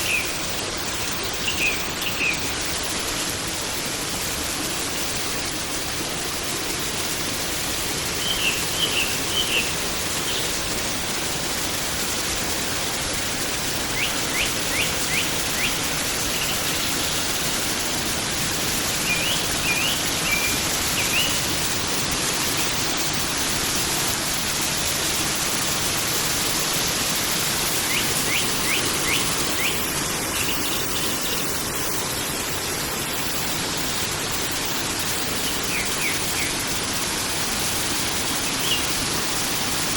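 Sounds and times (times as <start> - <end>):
small bird chirping: 0.0 - 0.4, 8.2 - 10.5, 14.0 - 17.1, 19.0 - 21.5, 27.7 - 31.6, 38.3 - 39.0
forest stream flowing: 0.0 - 39.9.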